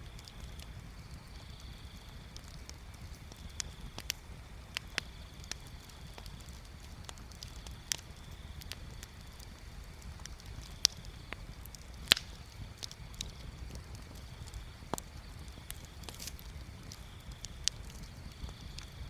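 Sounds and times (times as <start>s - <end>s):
bonfire crackling and popping: 0.0s - 19.0s
low fire rumble: 0.0s - 19.0s.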